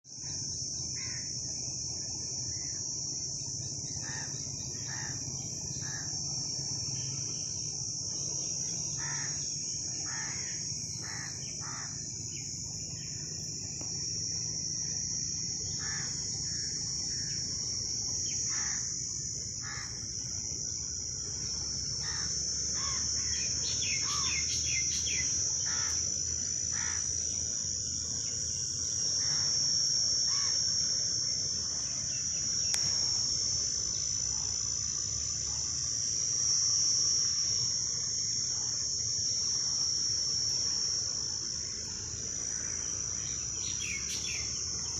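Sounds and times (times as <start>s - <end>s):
insects droning: 0.0s - 44.9s
bird calls and chirps: 43.4s - 44.6s.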